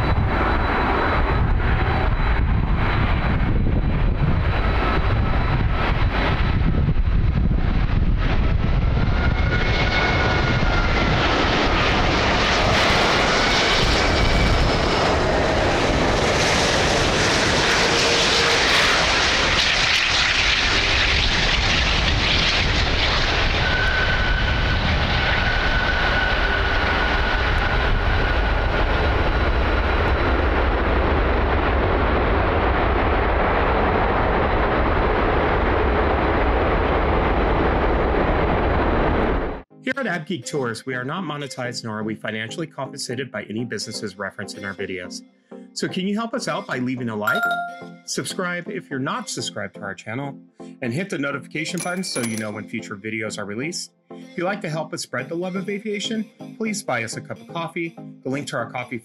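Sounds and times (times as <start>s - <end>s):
jet aircraft passing with whine: 0.0s - 39.6s.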